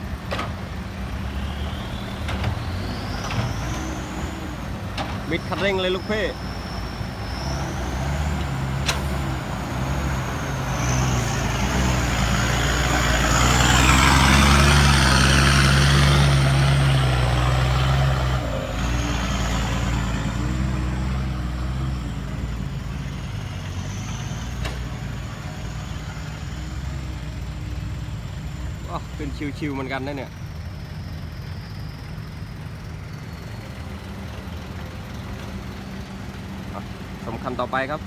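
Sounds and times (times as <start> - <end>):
diesel truck engine at full throttle: 0.0 - 38.0.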